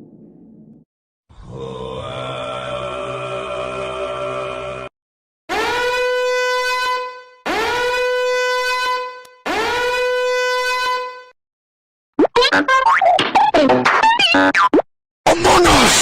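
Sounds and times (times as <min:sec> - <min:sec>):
horn blasts: 0:05.5 - 0:11.4.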